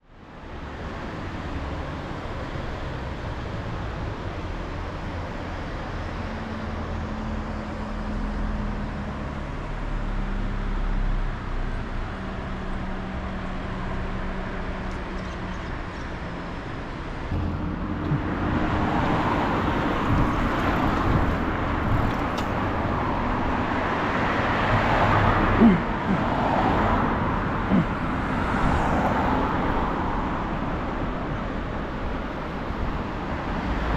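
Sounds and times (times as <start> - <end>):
road noise: 0.0 - 33.9
low humming: 17.3 - 23.6
car engine running: 17.3 - 23.8.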